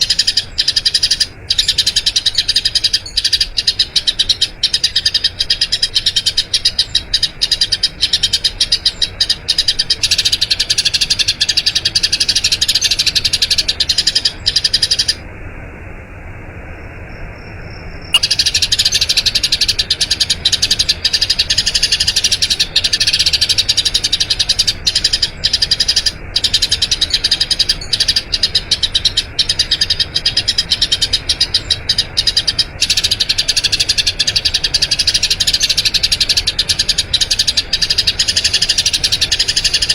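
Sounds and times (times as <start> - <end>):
sparrow chirping: 0.0 - 15.2, 18.1 - 39.9.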